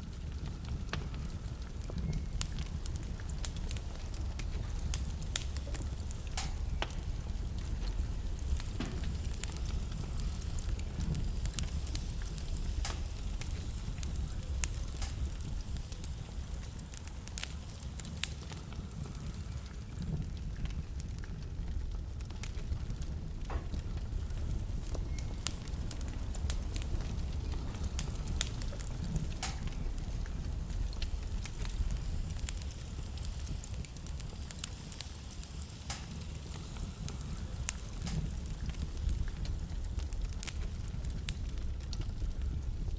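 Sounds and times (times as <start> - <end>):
burning logs crackling and popping: 0.0 - 42.9
low rumble of fire flames: 0.0 - 42.9.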